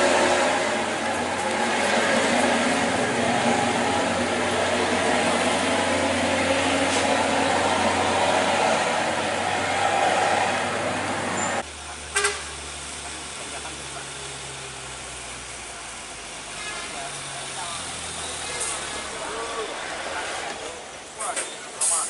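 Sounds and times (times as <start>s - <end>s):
truck engine running: 0.0s - 16.4s
heavy road noise: 0.0s - 22.0s.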